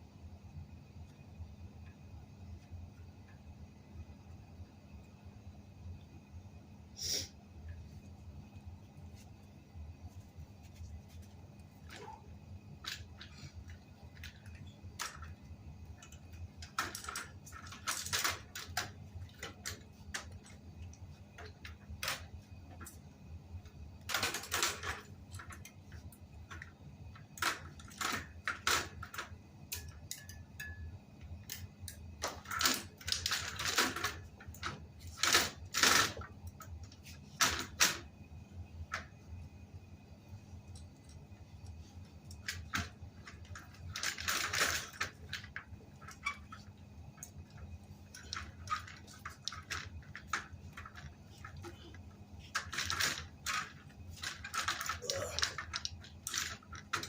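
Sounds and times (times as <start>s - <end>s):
low steady hum: 0.0s - 57.0s
scraping rustles: 8.8s - 12.3s
tools clicking and tapping: 27.4s - 34.0s.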